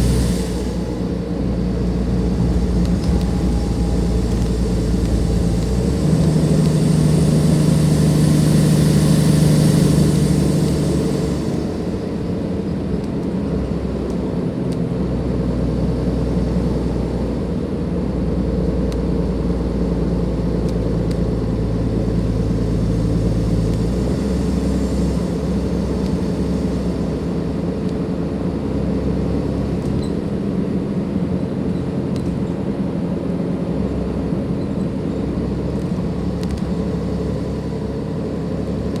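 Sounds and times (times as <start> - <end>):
turbo whine: 0.0 - 12.8
bus diesel engine running: 0.0 - 39.0.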